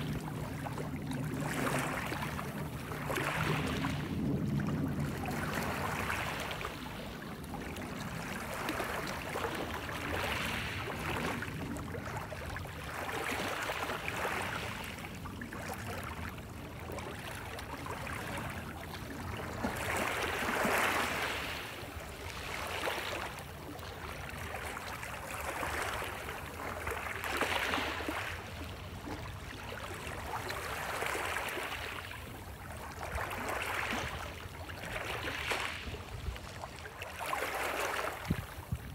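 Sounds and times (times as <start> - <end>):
waves washing in: 0.0 - 38.9.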